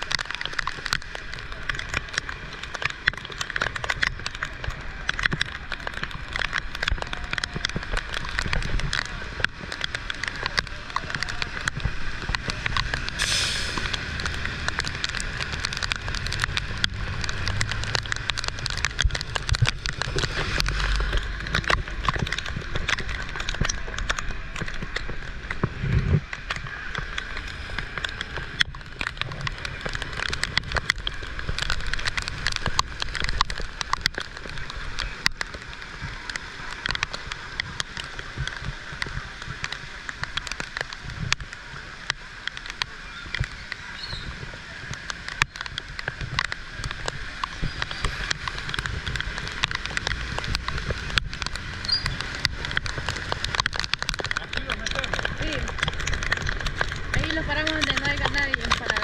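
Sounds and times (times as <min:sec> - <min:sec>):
heavy rain pattering: 0:00.0 - 0:59.0.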